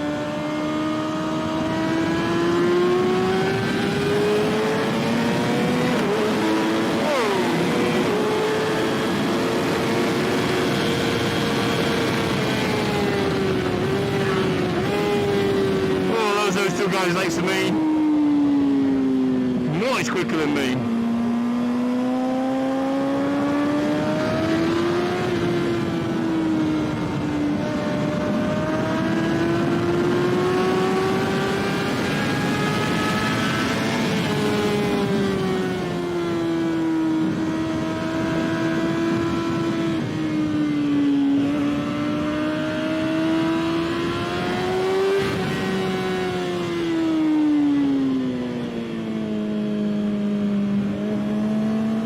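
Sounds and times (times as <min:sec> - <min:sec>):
motorcycle engine at high revs: 0:00.0 - 0:16.2, 0:20.6 - 0:52.0.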